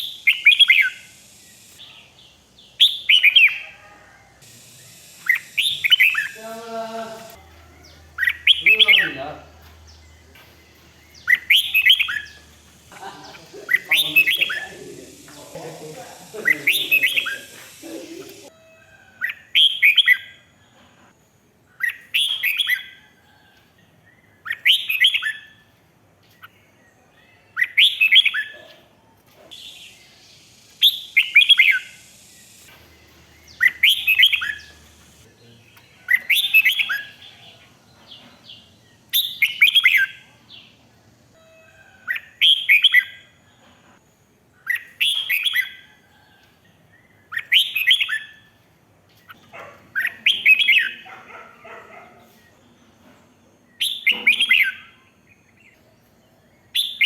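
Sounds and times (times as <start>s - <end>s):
bird singing warbled phrase: 0.0s - 18.5s, 29.5s - 37.6s, 49.4s - 51.7s, 53.8s - 55.1s.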